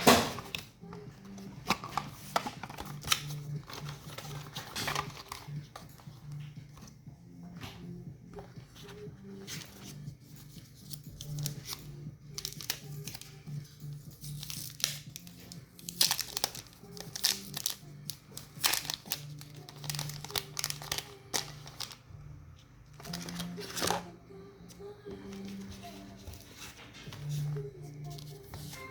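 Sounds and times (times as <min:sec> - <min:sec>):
background music: 0:00.0 - 0:28.9
tablet packaging crinkling: 0:00.1 - 0:06.4, 0:09.6 - 0:13.6, 0:14.2 - 0:22.0, 0:22.9 - 0:24.1.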